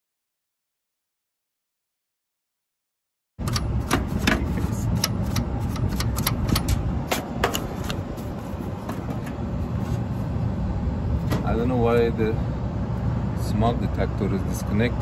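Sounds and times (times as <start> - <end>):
sharp clicks and metallic taps: 3.4 - 8.0
steady low rumble: 3.4 - 15.0.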